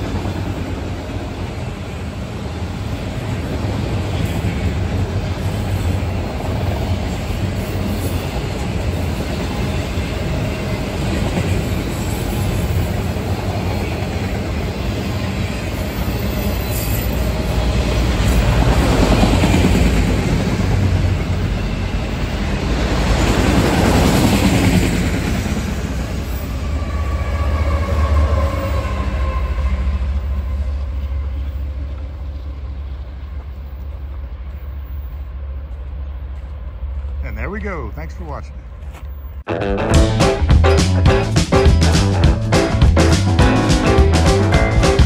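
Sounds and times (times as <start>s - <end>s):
freight train wheels rumbling: 0.0s - 39.4s, 40.0s - 45.0s.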